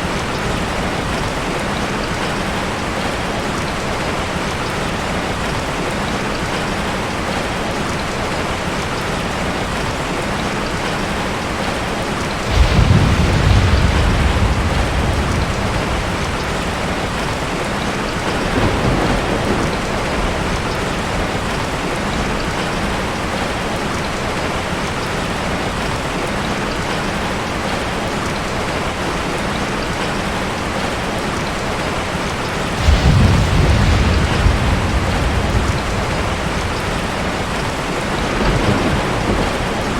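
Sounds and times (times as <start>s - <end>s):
steady rain hiss: 0.0s - 39.9s
thunder rumbling: 12.4s - 23.4s, 32.7s - 39.9s.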